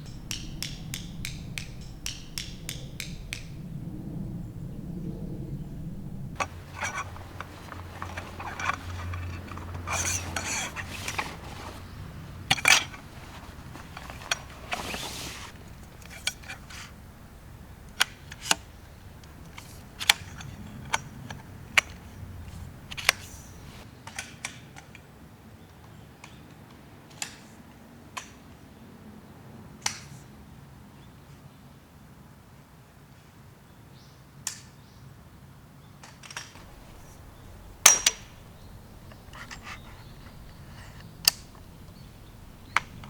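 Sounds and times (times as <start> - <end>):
sharp clicks and light knocks: 0.0 - 3.5, 6.4 - 23.8, 36.6 - 43.0
rustling: 0.0 - 23.8, 36.6 - 43.0.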